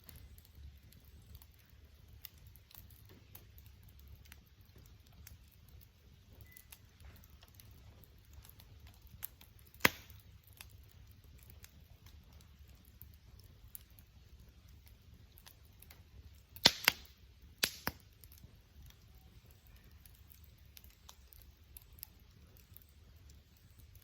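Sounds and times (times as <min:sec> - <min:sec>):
campfire crackling: 0:00.0 - 0:24.0
loud sharp pop: 0:09.8 - 0:10.1, 0:16.6 - 0:18.0.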